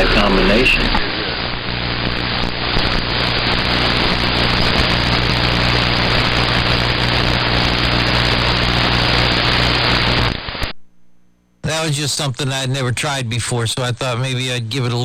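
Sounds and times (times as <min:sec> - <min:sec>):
low steady hum: 0:00.0 - 0:08.9
radio static hiss: 0:00.0 - 0:10.8.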